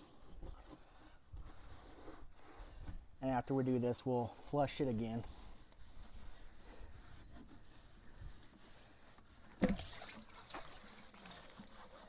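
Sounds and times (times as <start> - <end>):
water sloshing in a tank: 7.5 - 12.0
water splash: 9.6 - 11.7.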